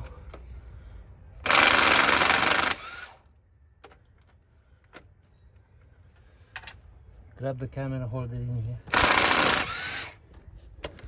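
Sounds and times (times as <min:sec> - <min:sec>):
power tool burst: 0:01.4 - 0:03.2, 0:08.9 - 0:10.2.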